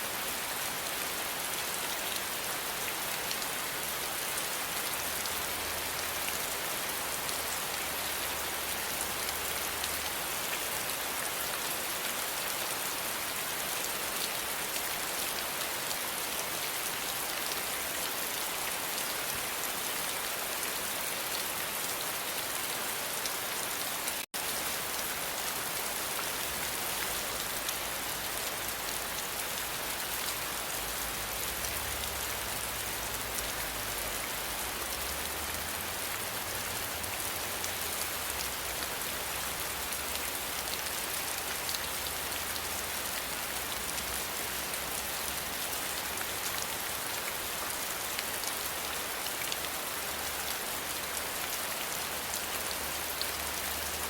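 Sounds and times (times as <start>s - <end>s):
rain pattering on a surface: 0.0s - 54.0s.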